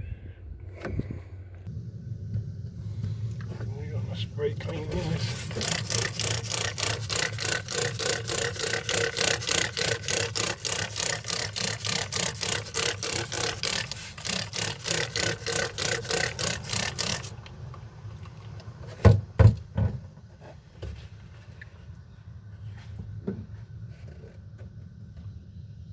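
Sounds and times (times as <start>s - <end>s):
hand scrubbing a panel: 4.7s - 17.3s.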